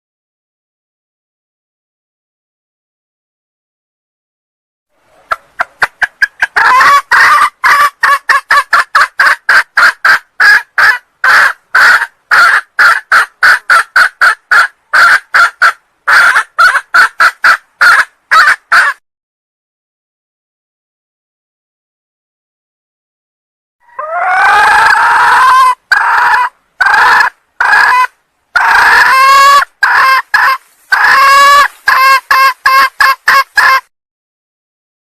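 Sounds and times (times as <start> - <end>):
hen clucking call: 5.0 - 19.0, 23.8 - 33.9.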